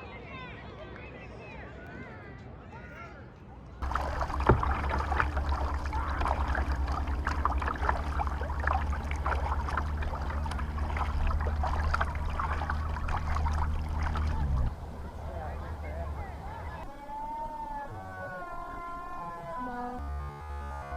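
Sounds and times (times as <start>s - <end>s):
paddle splashing water: 3.8s - 17.2s
steady low hum: 3.8s - 20.9s.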